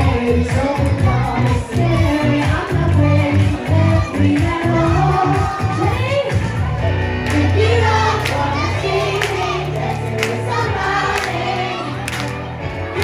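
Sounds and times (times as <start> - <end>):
pop song with singing: 0.0 - 13.0
steady bass line: 0.0 - 13.0
drum beat: 0.1 - 6.8.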